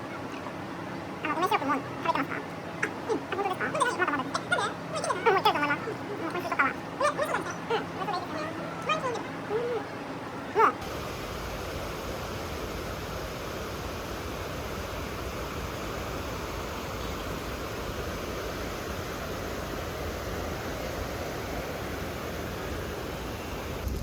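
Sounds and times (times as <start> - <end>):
steady rushing noise with low rumble: 10.8 - 24.0.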